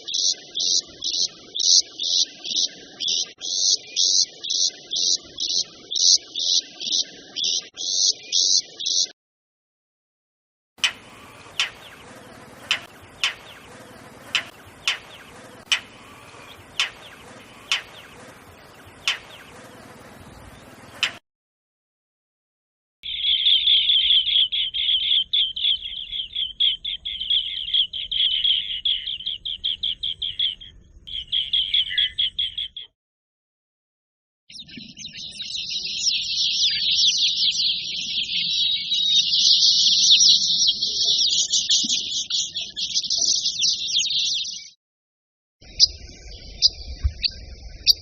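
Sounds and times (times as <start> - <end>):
bird twittering song: 0.0 - 9.2, 10.8 - 21.2, 23.0 - 32.9, 34.5 - 44.8, 45.6 - 48.0
bird chattering notes: 10.8 - 21.2.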